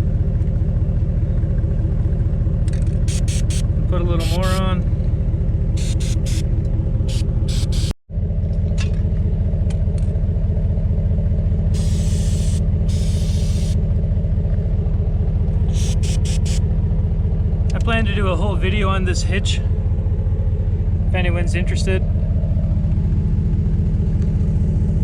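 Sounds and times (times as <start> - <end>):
engine idling: 0.0 - 25.0
aerosol can hissing: 3.0 - 3.6, 4.2 - 4.6, 5.8 - 6.4, 7.1 - 7.9, 11.7 - 13.8, 15.7 - 16.6.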